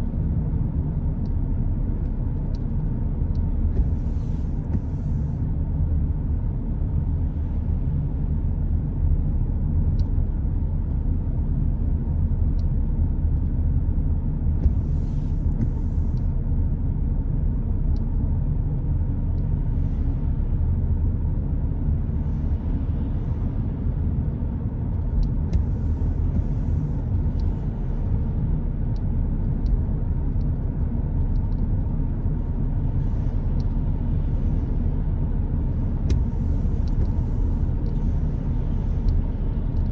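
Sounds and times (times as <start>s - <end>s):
car road rumble: 0.0s - 39.9s.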